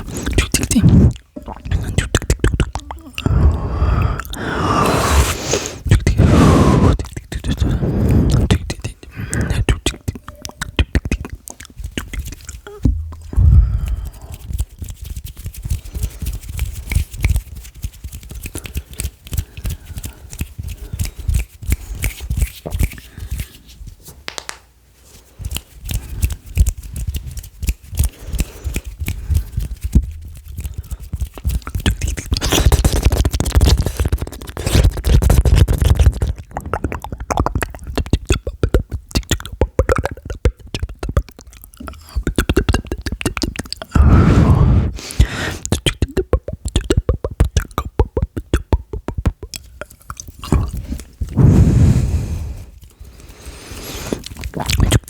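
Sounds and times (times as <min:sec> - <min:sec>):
wet mouth clicks and smacks: 0:00.0 - 0:55.0.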